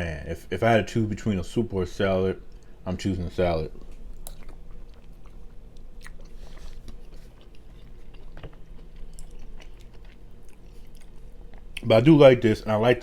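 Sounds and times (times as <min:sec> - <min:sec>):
steady low hum: 0:00.0 - 0:13.0
man chewing food: 0:03.7 - 0:11.9.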